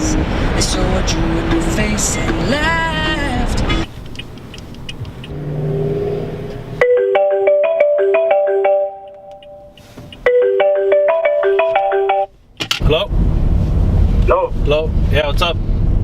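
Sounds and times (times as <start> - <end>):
car cabin hum: 0.0 - 7.0
marimba phone ringtone: 6.8 - 12.3.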